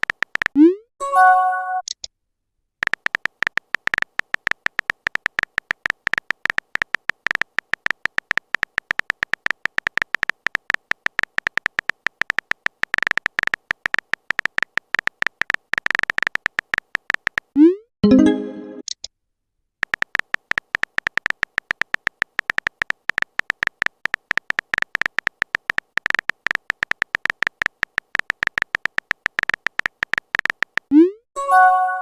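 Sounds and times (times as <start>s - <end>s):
phone keyboard typing clicks: 0.0s - 0.6s, 2.8s - 17.6s, 19.8s - 30.9s
message notification chime: 18.0s - 18.8s, 31.4s - 32.0s.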